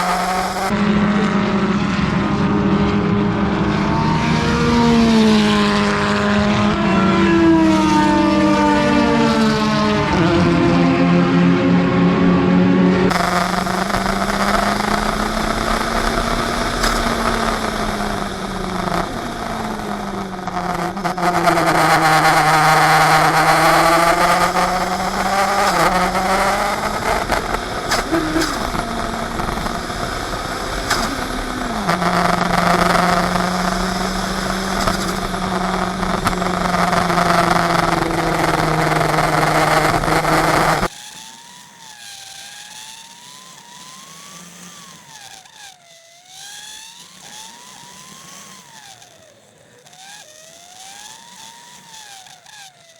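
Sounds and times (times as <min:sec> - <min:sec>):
race car engine running hard: 0:00.0 - 0:40.9
road noise: 0:00.0 - 0:40.9.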